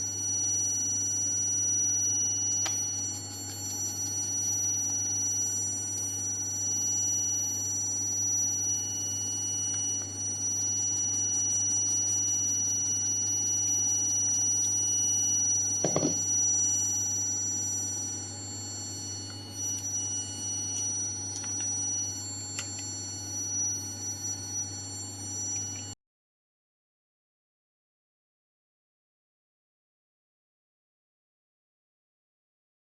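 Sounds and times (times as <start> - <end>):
machine humming with whining tones: 0.0 - 26.0.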